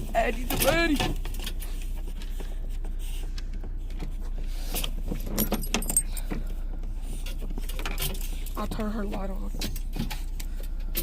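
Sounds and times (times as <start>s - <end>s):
steady low hum: 0.0s - 11.0s
dog collar jingling: 5.3s - 6.3s.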